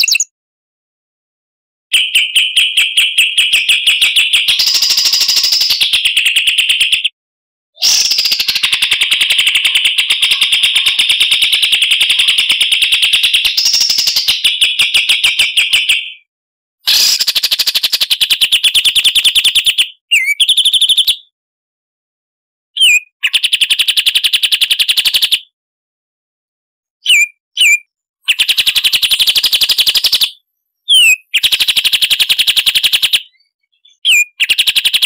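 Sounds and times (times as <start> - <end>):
songbird fast buzzy trill: 0.0 - 0.3, 4.6 - 5.8, 7.8 - 9.6, 16.9 - 18.0, 22.8 - 23.1, 27.1 - 30.2, 30.9 - 33.0.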